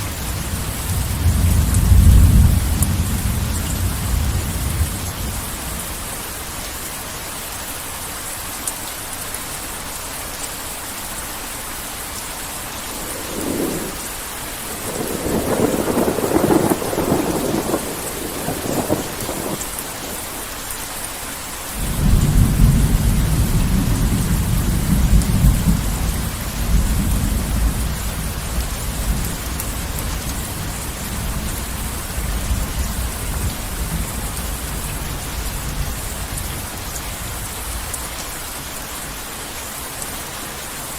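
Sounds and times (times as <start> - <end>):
thunder crackling and rumbling: 0.0 - 6.4, 12.6 - 20.5, 21.8 - 38.2
heavy rain falling: 0.0 - 40.9.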